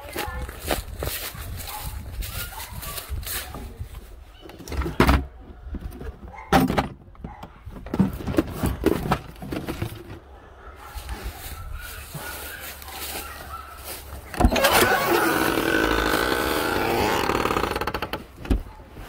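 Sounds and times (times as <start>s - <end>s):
clunks and knocks: 4.5s - 10.2s, 16.9s - 18.8s.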